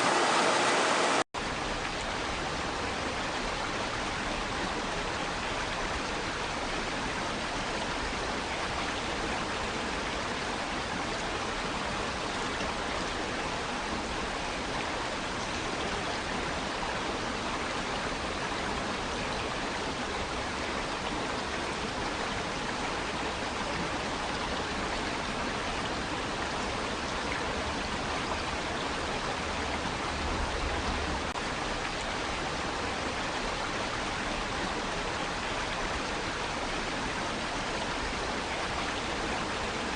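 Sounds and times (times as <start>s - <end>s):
water rushing against rocks: 0.0s - 1.2s.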